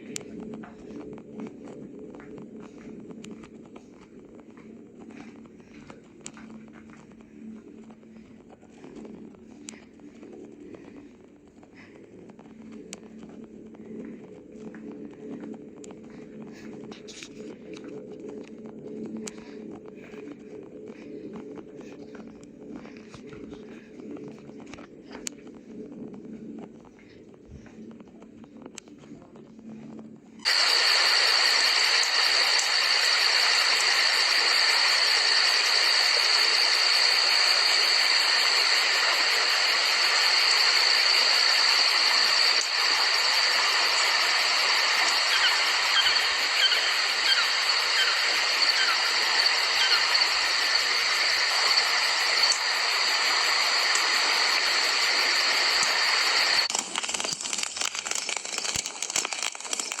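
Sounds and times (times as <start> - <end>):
steady rain hiss: 30.4 - 60.0
high-pitched drone: 30.5 - 57.6.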